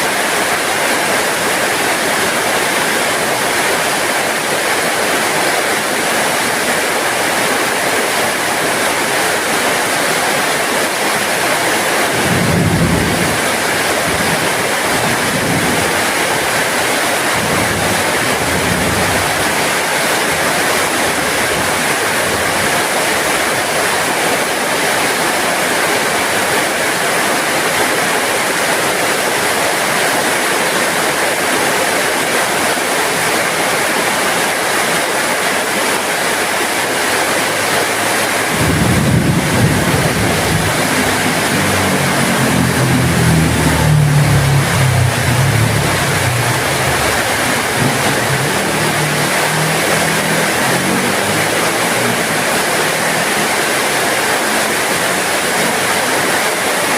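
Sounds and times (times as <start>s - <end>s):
heavy rain falling: 0.0s - 56.9s
low rumble: 38.5s - 50.7s.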